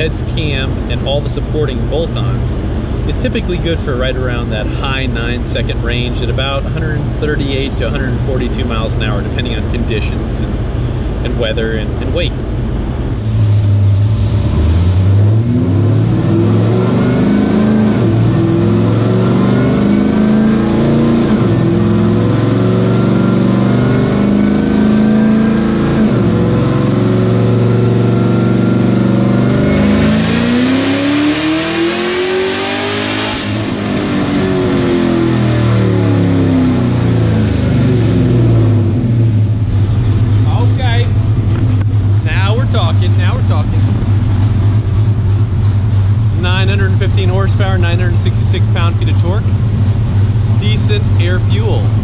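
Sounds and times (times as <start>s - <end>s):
supercharger whine: 0.0s - 52.0s
engine revving at full throttle: 13.2s - 39.5s, 42.1s - 44.0s.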